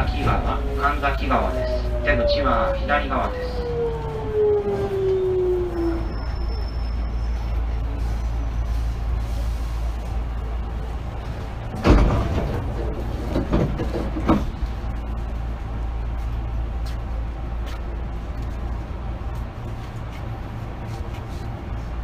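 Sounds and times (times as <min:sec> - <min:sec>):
train steady low hum: 0:00.0 - 0:22.0
loud thump: 0:11.8 - 0:12.7.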